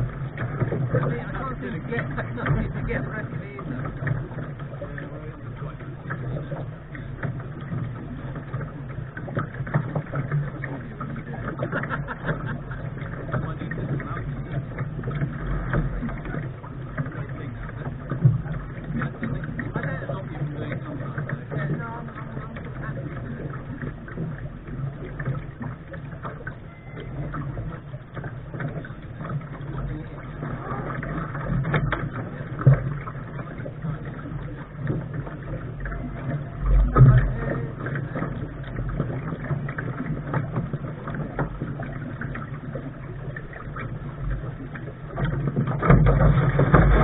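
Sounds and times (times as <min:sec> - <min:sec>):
low rumble: 0:00.0 - 0:47.0
water splashing on hull: 0:00.0 - 0:47.0.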